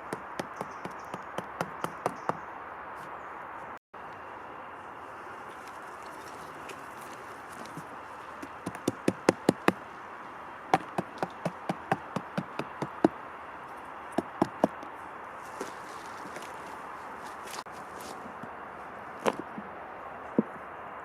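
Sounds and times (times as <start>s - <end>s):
tool knocking on wood: 0.0s - 2.4s, 8.4s - 9.8s, 10.7s - 13.1s, 14.2s - 14.8s.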